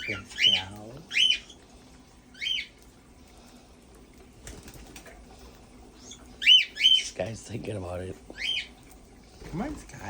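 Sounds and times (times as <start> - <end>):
parrot chirping calls: 0.0 - 1.6, 2.3 - 2.8, 6.0 - 7.2, 8.3 - 8.8
faint room hum: 0.0 - 10.0.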